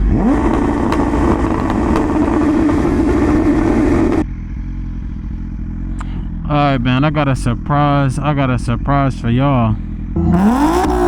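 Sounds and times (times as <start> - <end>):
motorcycle engine revving high: 0.0 - 5.9, 9.9 - 11.0
low steady engine hum: 0.0 - 11.0.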